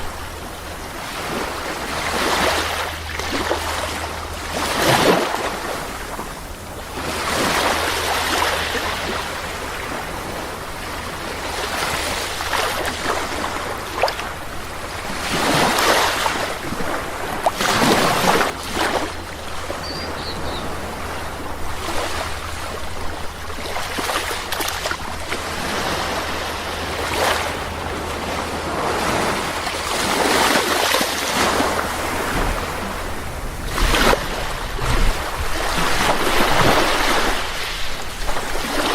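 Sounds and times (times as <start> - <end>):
sea waves breaking on beach: 0.0 - 38.9
steady low rumble: 24.9 - 38.6.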